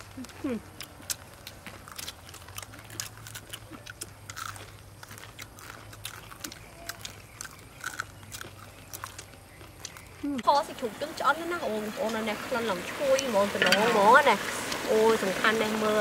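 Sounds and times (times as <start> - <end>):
people chewing with lip smacks: 0.0 - 10.5.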